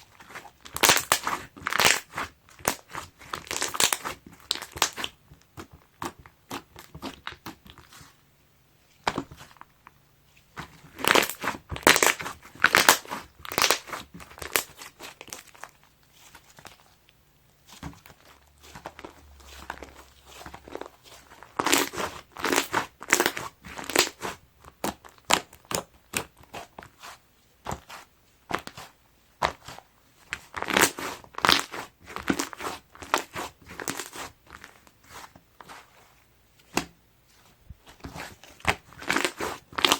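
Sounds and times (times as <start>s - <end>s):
slime squeezed crackling pops: 0.7s - 5.2s, 11.0s - 15.5s.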